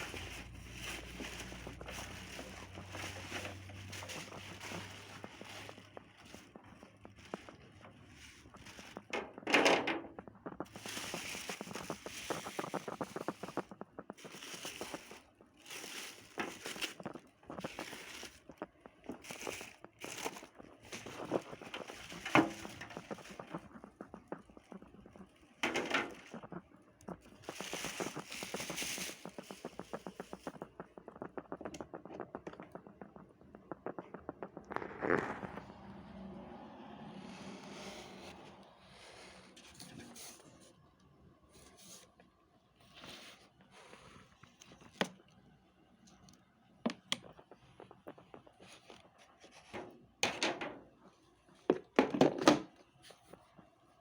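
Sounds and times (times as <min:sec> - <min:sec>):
packing material rustling: 0:00.0 - 0:09.9, 0:10.5 - 0:33.2.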